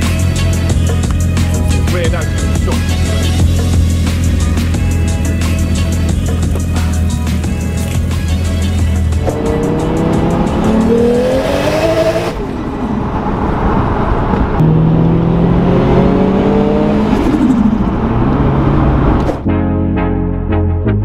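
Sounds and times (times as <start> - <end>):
racing car engines accelerating: 8.6 - 19.4.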